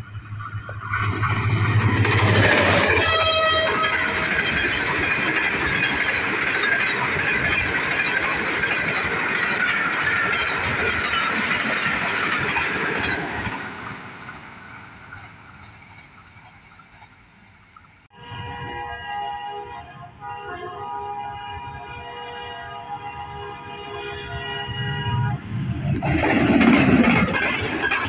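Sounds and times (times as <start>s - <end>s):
train wheels clattering: 0.3s - 18.1s, 25.9s - 28.0s.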